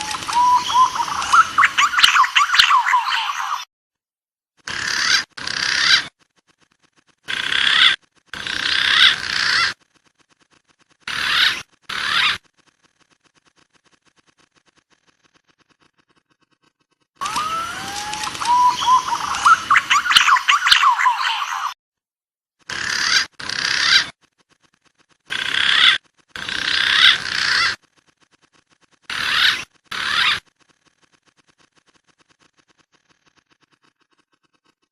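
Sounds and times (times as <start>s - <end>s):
recorded pigeon calls: 0.0s - 3.6s, 17.2s - 21.8s.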